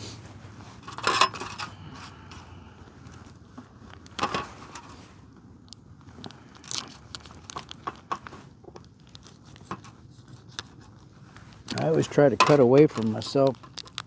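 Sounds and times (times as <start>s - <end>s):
plastic packaging rustling: 0.0s - 14.0s.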